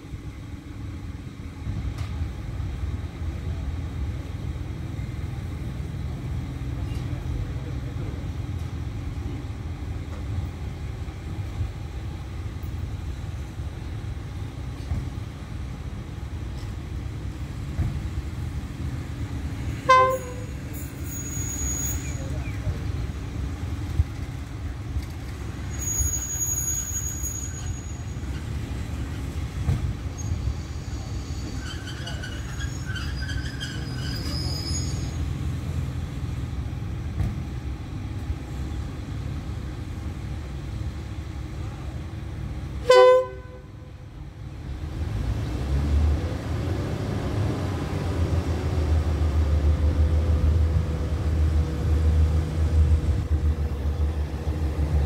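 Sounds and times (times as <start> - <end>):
diesel train rumble: 0.0 - 55.0
train horn toot: 19.8 - 20.6, 42.8 - 43.9.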